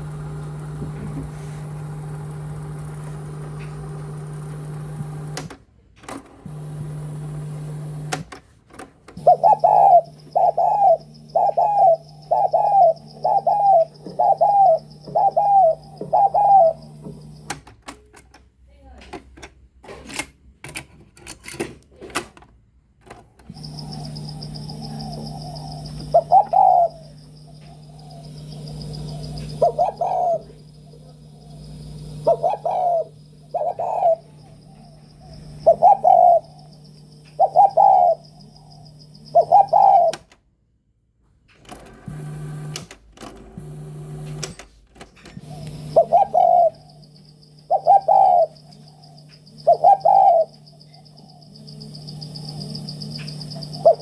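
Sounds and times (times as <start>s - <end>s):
bird cooing calls: 9.2s - 17.5s, 23.5s - 40.3s, 45.4s - 54.0s
steady low hum: 9.2s - 17.6s, 23.5s - 40.2s, 45.4s - 54.0s.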